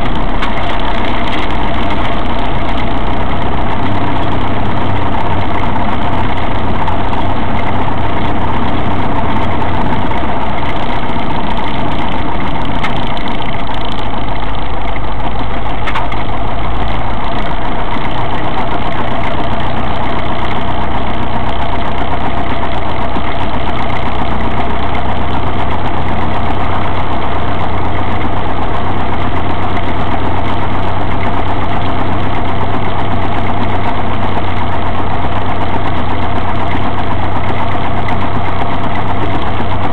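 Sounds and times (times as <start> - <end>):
airplane piston engine and propeller: 0.0 - 39.9.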